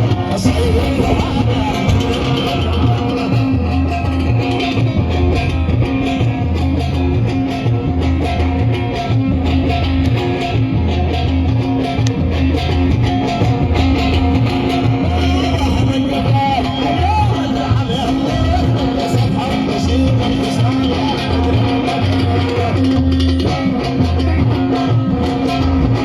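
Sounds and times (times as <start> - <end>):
bass notes: 0.0 - 26.0
electric guitar: 0.0 - 26.0
steady drum beat: 0.0 - 26.0.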